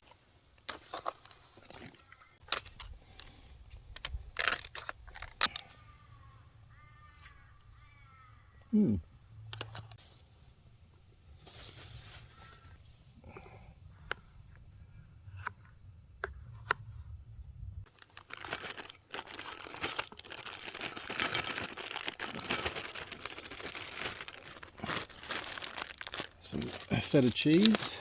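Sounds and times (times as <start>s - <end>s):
plastic packaging crinkling: 4.0s - 5.6s, 17.9s - 28.0s.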